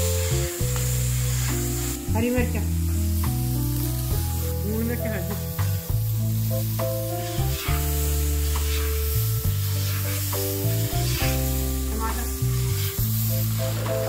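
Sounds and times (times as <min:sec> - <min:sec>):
background music with held notes: 0:00.0 - 0:14.0
paste sizzling in pan: 0:00.0 - 0:14.0.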